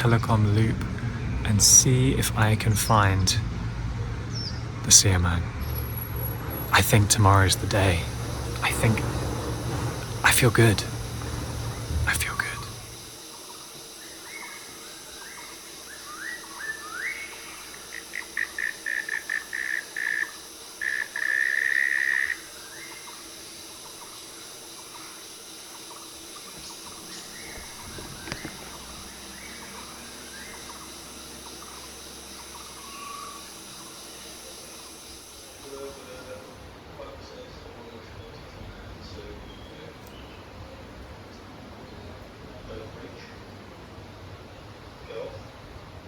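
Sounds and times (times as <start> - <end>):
high insect drone: 0.0 - 36.9
bird calling: 5.6 - 36.5
faint bird calls: 5.6 - 36.5.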